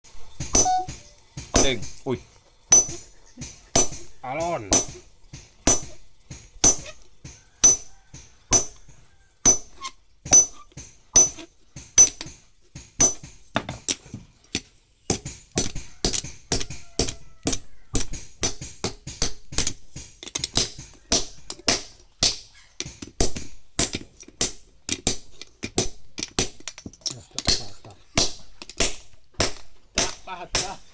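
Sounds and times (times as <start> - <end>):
hammer striking axe head on anvil: 0.5 - 1.9, 4.7 - 5.0, 5.7 - 6.0.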